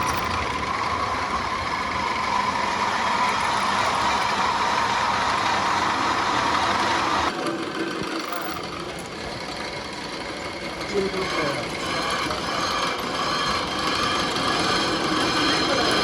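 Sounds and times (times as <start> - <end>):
workshop machinery running: 0.0 - 16.0
faint voices: 6.4 - 13.0.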